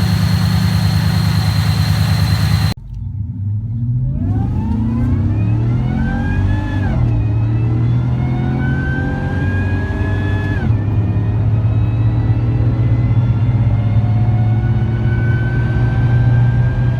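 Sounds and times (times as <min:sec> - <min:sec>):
deep engine exhaust revving: 0:00.0 - 0:02.8
supercharger whine: 0:00.0 - 0:02.8.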